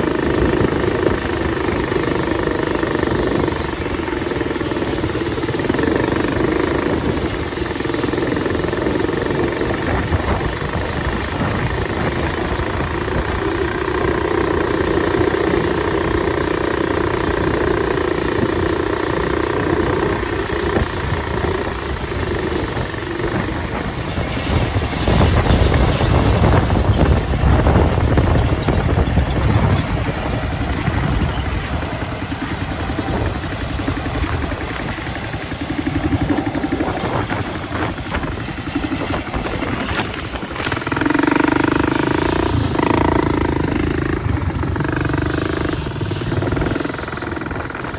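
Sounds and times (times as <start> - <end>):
combine harvester running: 0.0 - 47.9
machine whine: 0.0 - 47.9
deep rumble: 20.7 - 47.9.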